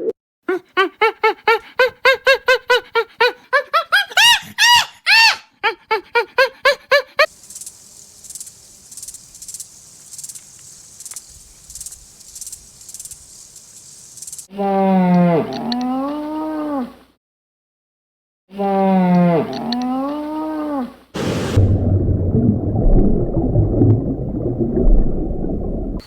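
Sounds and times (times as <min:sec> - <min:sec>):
high arching animal calls: 0:07.2 - 0:14.5
rhythmic rasping hiss: 0:07.3 - 0:14.5.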